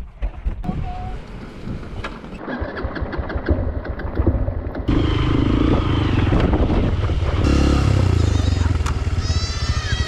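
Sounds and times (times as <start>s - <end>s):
motorcycle engine running: 2.4s - 10.0s.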